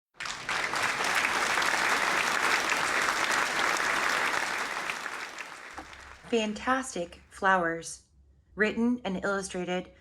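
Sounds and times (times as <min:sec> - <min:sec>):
crowd applauding: 0:00.1 - 0:06.3.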